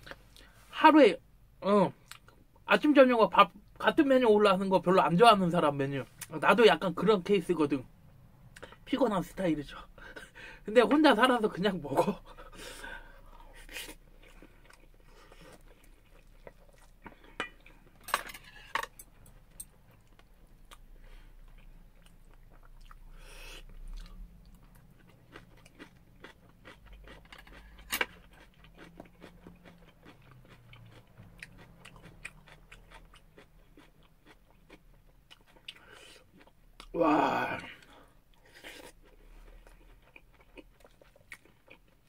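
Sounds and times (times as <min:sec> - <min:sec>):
person chewing: 0:12.0 - 0:42.0.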